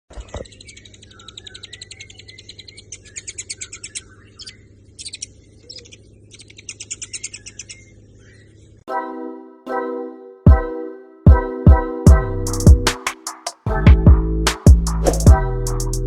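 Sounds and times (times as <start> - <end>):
bird chattering: 0.1 - 8.8.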